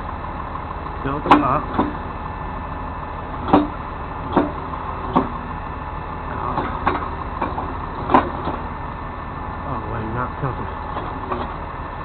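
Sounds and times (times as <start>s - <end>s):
truck engine idling: 0.0s - 12.0s
sharp metal clanks: 3.4s - 5.4s.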